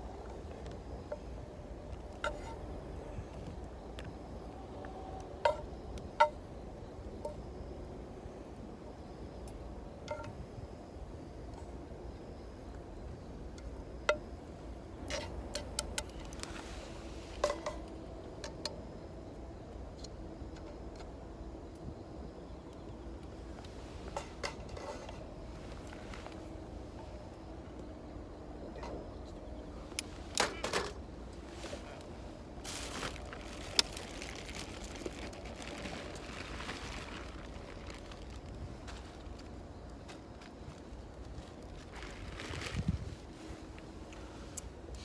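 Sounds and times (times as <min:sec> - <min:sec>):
wood fire crackling: 0:31.3 - 0:42.6.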